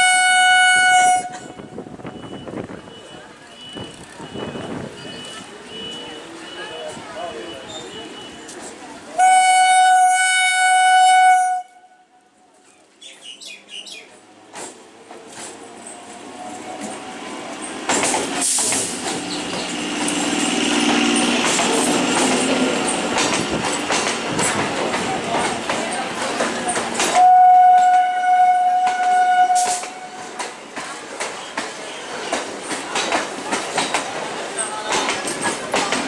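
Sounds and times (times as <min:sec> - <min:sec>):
train horn: 0:00.0 - 0:01.8, 0:09.2 - 0:12.2, 0:27.1 - 0:30.4
train wheels clattering over rail joints: 0:14.4 - 0:28.0, 0:28.8 - 0:36.0.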